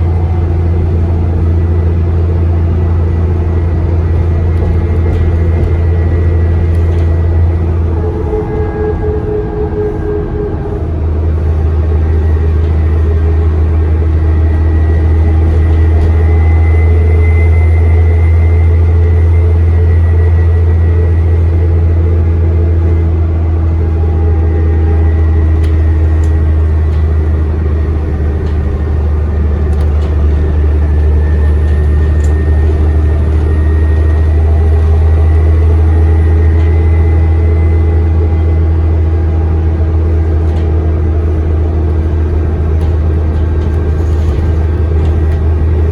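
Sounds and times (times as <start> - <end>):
bus engine drone: 0.0 - 45.9
turbocharger whistle: 5.8 - 21.8
light rattles and clicks: 25.3 - 35.0, 40.1 - 45.9.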